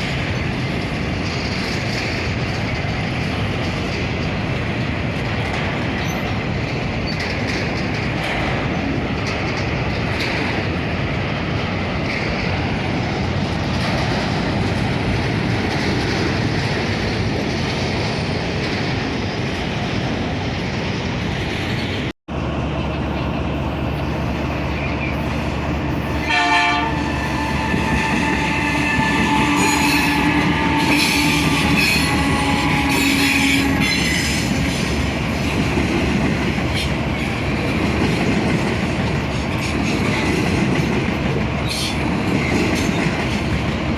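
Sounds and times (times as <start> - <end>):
train wheels rumbling on rail: 0.0 - 43.9
locomotive horn blast: 26.2 - 34.5
high wheel squeal: 26.9 - 34.9.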